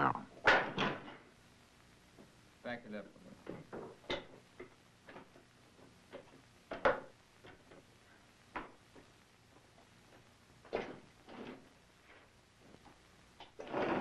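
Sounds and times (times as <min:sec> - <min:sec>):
wooden and metal knocks and scrapes: 0:00.4 - 0:01.3, 0:10.6 - 0:12.3, 0:13.4 - 0:14.0.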